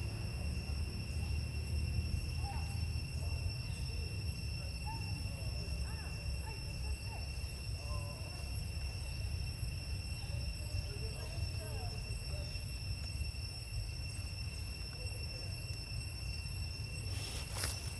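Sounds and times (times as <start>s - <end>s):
high insect buzz: 12.0s - 17.9s.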